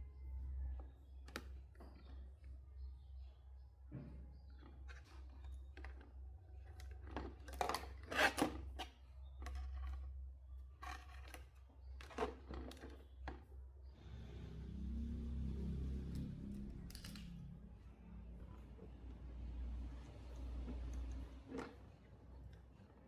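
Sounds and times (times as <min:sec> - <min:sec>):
small tools clicking and scraping: 0:04.5 - 0:13.6, 0:16.2 - 0:17.5.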